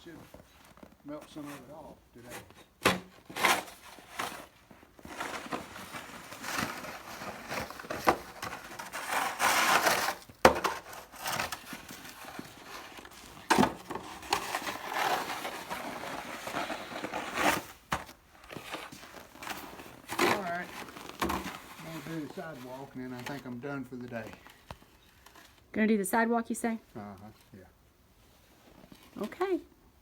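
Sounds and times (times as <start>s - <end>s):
snow shovel scraping: 1.2s - 23.9s.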